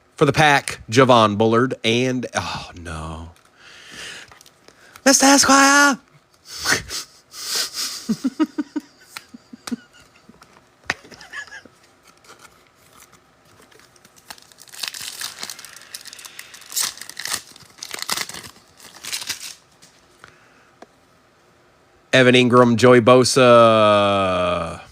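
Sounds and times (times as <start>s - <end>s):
card pack wrappers tearing: 12.0s - 19.9s.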